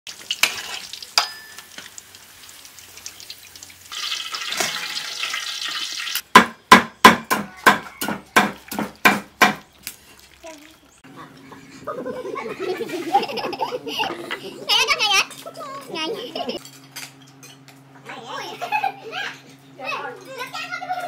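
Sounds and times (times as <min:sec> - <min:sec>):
meat sizzling in hot oil: 0:00.1 - 0:06.3
sharp knocks: 0:06.3 - 0:09.6.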